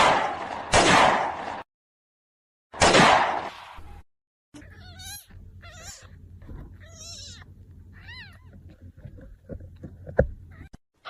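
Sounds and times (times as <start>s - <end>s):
cat meowing: 4.6s - 8.6s, 10.5s - 10.8s
faint low hum: 4.6s - 10.7s.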